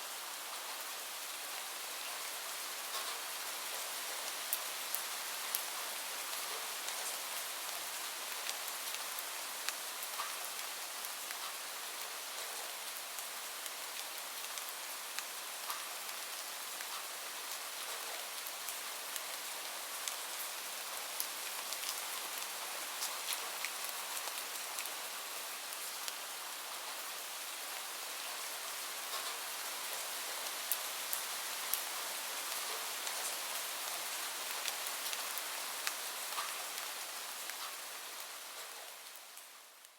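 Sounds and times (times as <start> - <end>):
steady rain falling: 0.0 - 39.9
raindrop ticks: 35.8 - 36.6.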